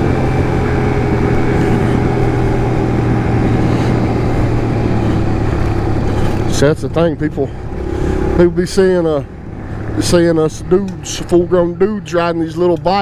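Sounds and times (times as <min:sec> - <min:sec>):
wind noise: 0:00.0 - 0:06.5
motorbike engine running: 0:00.0 - 0:08.7.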